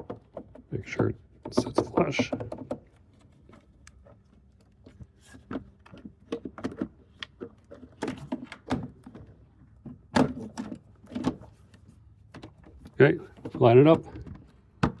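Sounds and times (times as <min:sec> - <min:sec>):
plastic parts clicking and knocking: 0:01.4 - 0:03.0.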